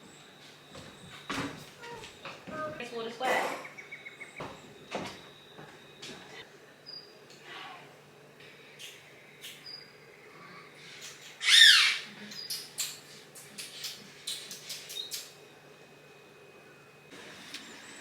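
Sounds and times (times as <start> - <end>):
bird squawking: 11.4 - 12.1.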